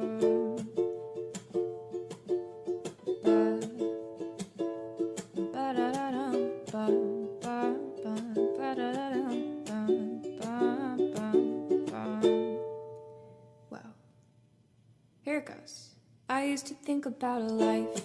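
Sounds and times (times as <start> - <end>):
ukulele picking: 0.0 - 13.3, 17.4 - 18.0.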